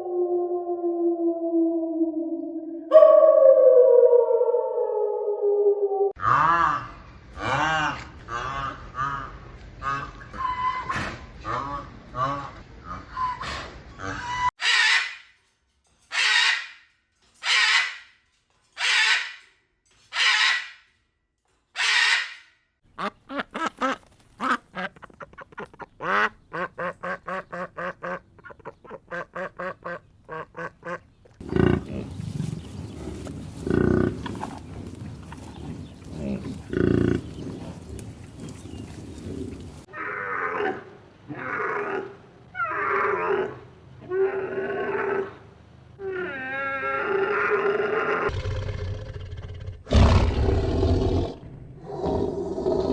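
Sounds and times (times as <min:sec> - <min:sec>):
ducks quacking: 0:22.9 - 0:32.3.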